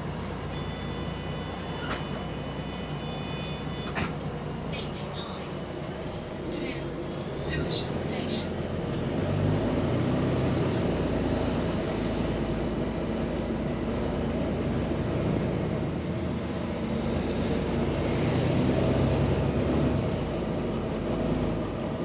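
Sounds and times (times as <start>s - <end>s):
bus diesel engine running: 0.0s - 22.0s.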